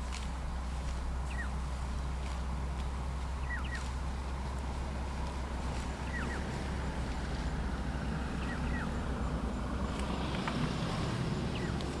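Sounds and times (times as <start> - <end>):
steady low rumble: 0.0 - 12.0
bird chirps: 1.2 - 1.6, 3.4 - 3.9, 6.0 - 6.5, 8.3 - 9.0, 11.4 - 11.9.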